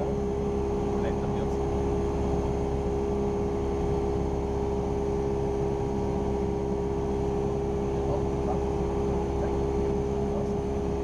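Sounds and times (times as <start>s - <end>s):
plane engine and propeller droning: 0.0s - 11.0s.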